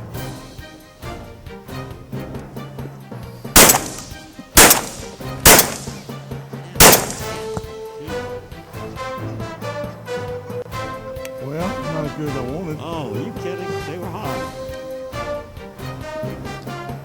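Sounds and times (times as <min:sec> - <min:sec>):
background music: 0:00.0 - 0:17.0
shotgun shots with echo: 0:03.6 - 0:06.2, 0:06.8 - 0:07.6.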